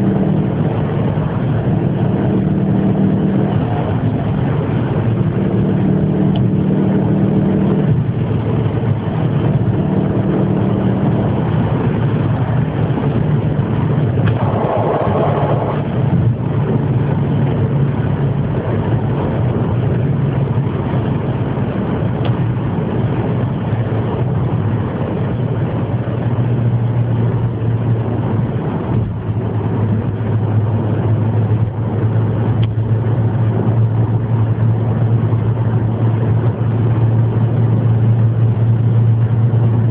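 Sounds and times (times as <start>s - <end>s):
engine humming at low speed: 0.0s - 39.9s.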